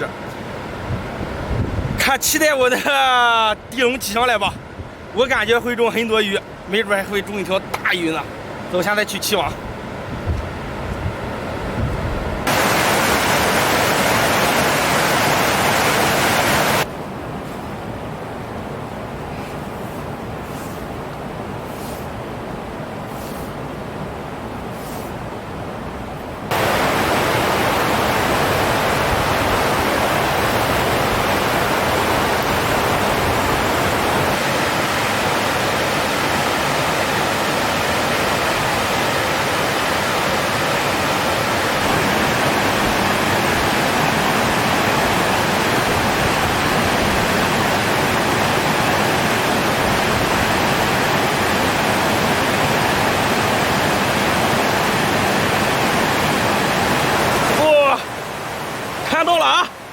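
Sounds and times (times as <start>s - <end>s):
water rushing from outlet: 12.4s - 16.9s, 26.5s - 59.9s.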